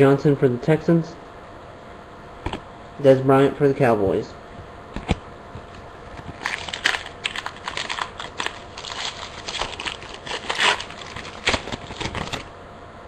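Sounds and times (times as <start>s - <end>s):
cards and wrappers crinkling: 6.2s - 12.5s.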